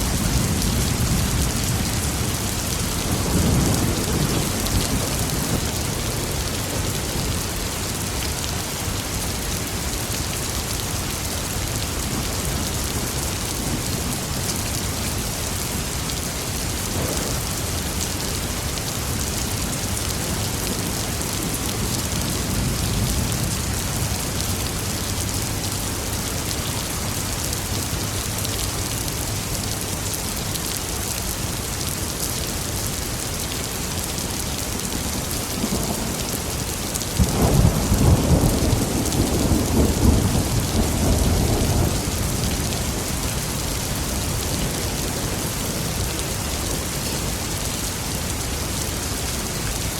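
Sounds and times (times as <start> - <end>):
low rumble of thunder: 0.0 - 7.5, 35.1 - 45.9
steady rain falling: 0.0 - 49.9.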